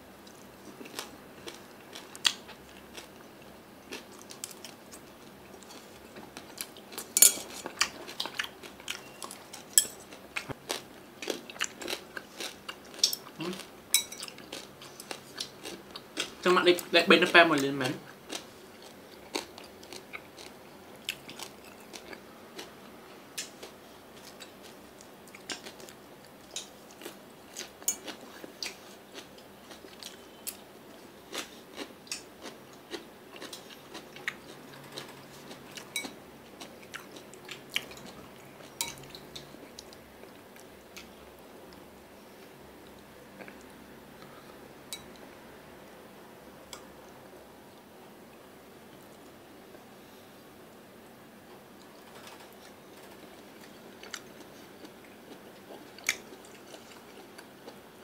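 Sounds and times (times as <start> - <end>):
person chewing crunchy food: 0.2 - 16.8, 18.1 - 41.8, 51.8 - 57.8.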